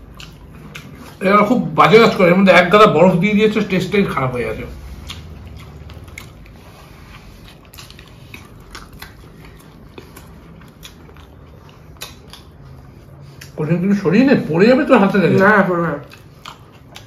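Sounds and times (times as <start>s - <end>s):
person chewing and biting food: 0.0s - 1.3s, 4.4s - 13.6s, 15.3s - 17.0s.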